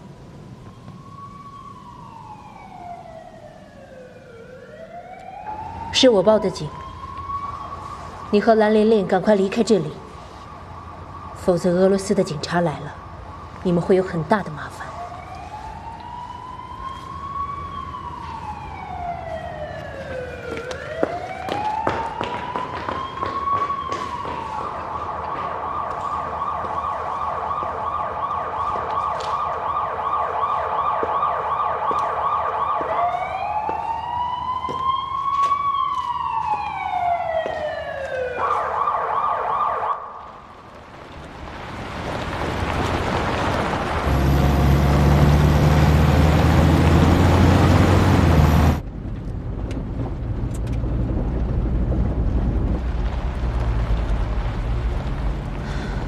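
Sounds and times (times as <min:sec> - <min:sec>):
police siren wailing and yelping: 0:00.7 - 0:08.8, 0:09.9 - 0:40.2.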